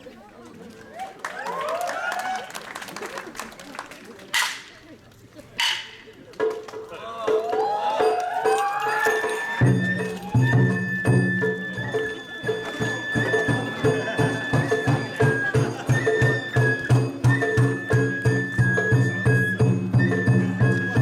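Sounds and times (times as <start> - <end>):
taiko drums beating: 5.6 - 21.0
bamboo flute high note: 7.3 - 21.0.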